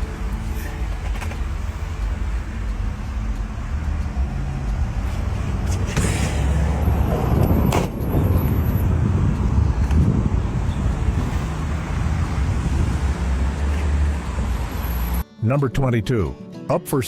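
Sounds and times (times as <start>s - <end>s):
car engine rumbling: 0.0s - 15.2s.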